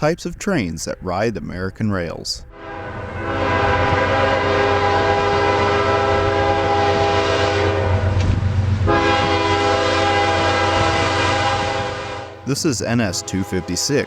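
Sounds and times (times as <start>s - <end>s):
low train rumble: 0.0s - 14.0s
train air horn: 2.5s - 8.2s, 8.9s - 12.4s, 13.1s - 14.0s.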